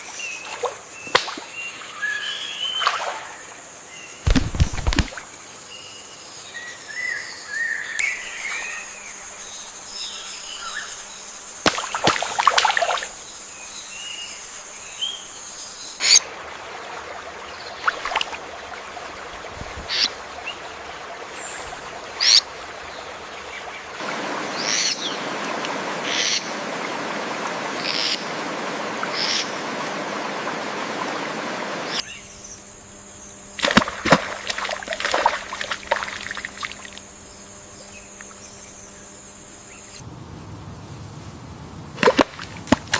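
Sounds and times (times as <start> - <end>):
steady hiss of water or insects: 0.0 - 42.9
birds calling and chirping: 19.8 - 20.6.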